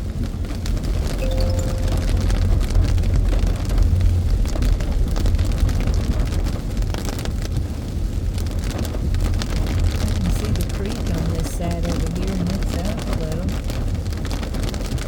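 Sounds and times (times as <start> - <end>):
raindrops ticking on windshield: 6.8 - 15.0.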